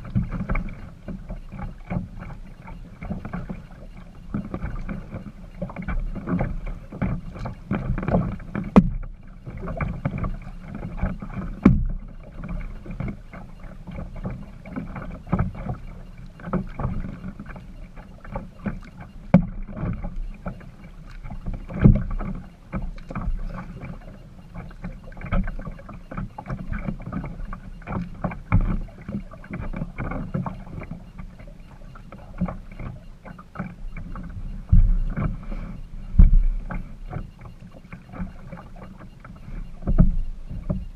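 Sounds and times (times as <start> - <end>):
paddle splashes and drips: 0.0 - 40.9
knocks against kayak hull: 5.7 - 10.4, 11.0 - 12.0, 19.3 - 20.0, 36.2 - 37.3
low steady rumble: 25.4 - 37.7.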